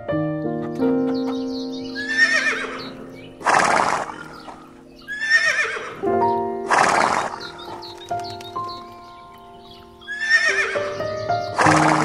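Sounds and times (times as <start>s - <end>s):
background music: 0.0s - 12.0s
horse whinnying: 2.0s - 6.1s, 6.7s - 7.9s, 10.0s - 10.9s, 11.6s - 12.0s.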